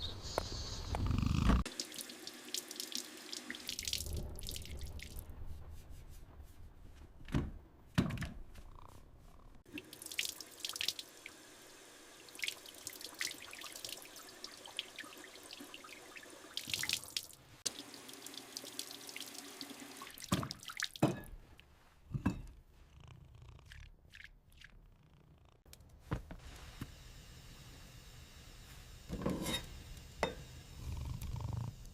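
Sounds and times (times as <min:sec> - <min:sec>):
water running steadily: 0:01.7 - 0:05.2, 0:09.6 - 0:21.2, 0:26.4 - 0:31.2
water dripping and splashing: 0:01.7 - 0:05.3, 0:09.7 - 0:11.4, 0:12.2 - 0:21.1, 0:23.7 - 0:24.7.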